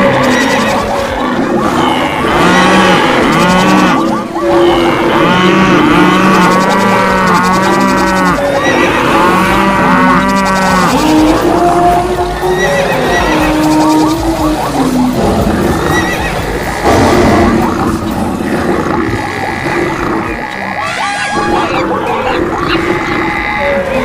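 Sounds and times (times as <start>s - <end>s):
animals making long low calls: 0.0s - 24.0s.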